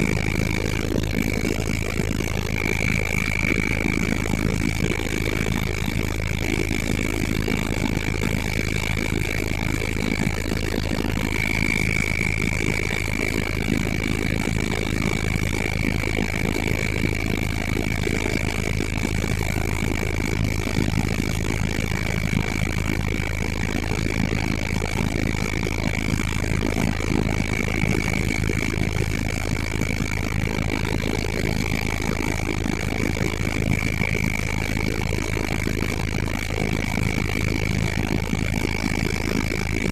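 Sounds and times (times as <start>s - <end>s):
helicopter in flight: 0.0s - 39.9s.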